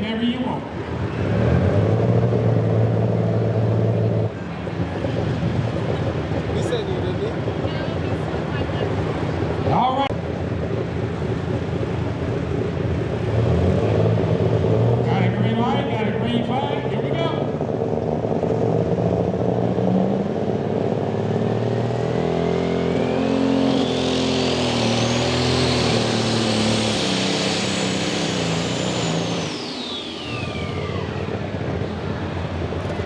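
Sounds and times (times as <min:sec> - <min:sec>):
diesel tractor engine with whine: 0:00.0 - 0:33.0.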